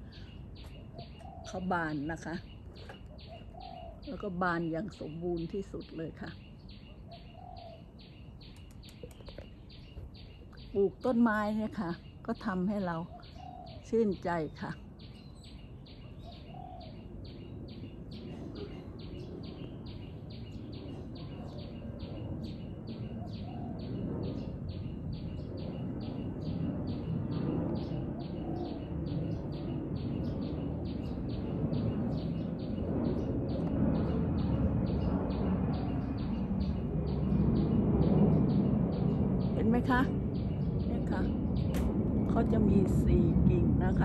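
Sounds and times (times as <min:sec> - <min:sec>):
small bird chirping: 0:00.0 - 0:44.0
low background rumble: 0:16.2 - 0:44.0.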